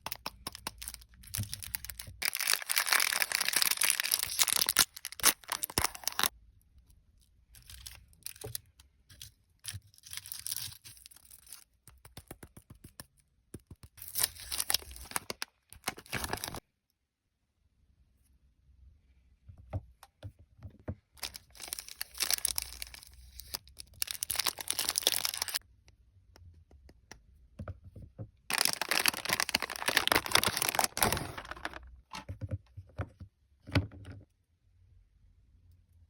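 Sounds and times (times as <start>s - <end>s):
wrapper crinkling and tearing: 0.0s - 6.3s, 14.0s - 16.6s, 21.2s - 25.6s, 28.5s - 31.9s.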